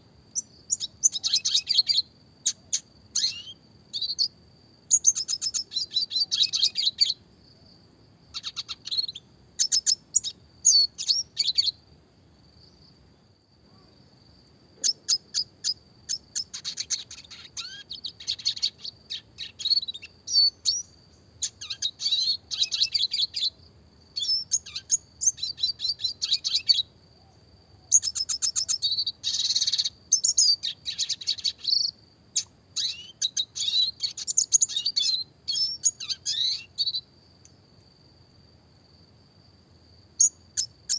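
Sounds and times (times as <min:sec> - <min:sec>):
bird singing fast twittering: 0:00.4 - 0:07.2, 0:08.3 - 0:11.8, 0:14.8 - 0:23.6, 0:24.2 - 0:26.9, 0:27.9 - 0:37.1.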